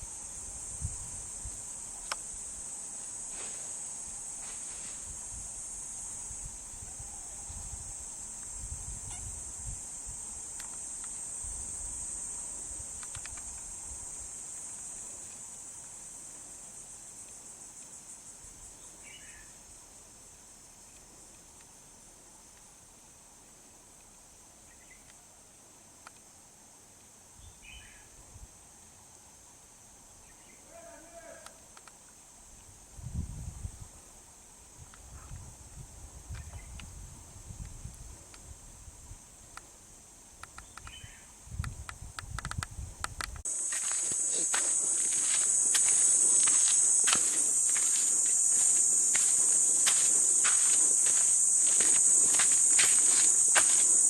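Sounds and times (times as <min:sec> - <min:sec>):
high-pitched insect chorus: 0:00.0 - 0:26.6, 0:27.3 - 0:54.0.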